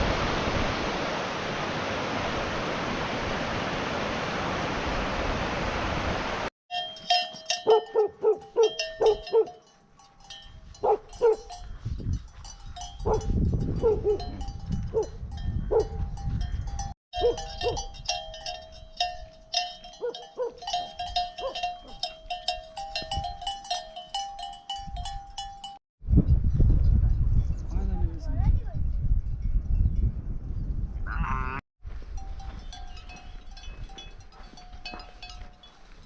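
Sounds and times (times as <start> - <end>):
livestock bells clanking: 6.7 - 25.8, 31.9 - 36.0.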